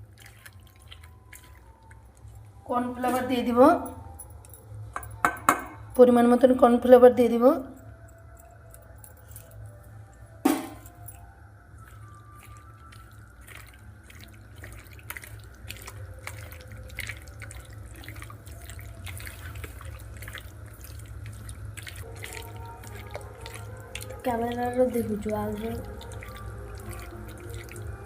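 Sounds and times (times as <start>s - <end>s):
hands squelching wet marinade: 0.0s - 3.6s, 10.9s - 28.0s.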